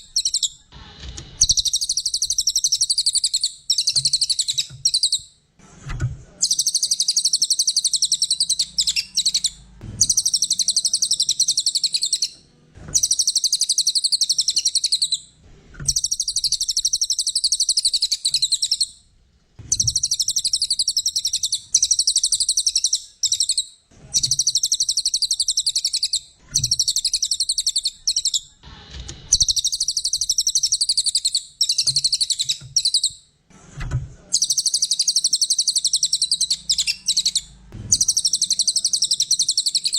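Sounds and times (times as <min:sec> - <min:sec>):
songbird chirping trills: 0:01.4 - 0:05.4, 0:06.4 - 0:15.3, 0:15.9 - 0:19.0, 0:19.6 - 0:28.6, 0:34.4 - 0:39.9.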